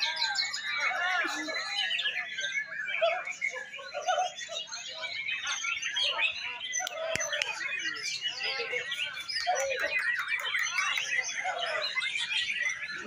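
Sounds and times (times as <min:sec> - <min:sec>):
people talking: 0:00.0 - 0:13.0
songbirds singing: 0:00.0 - 0:13.0.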